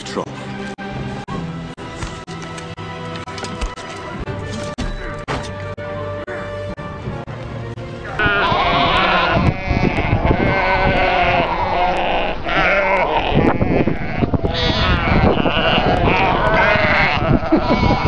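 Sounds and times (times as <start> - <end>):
flock bleating: 8.2 - 18.0.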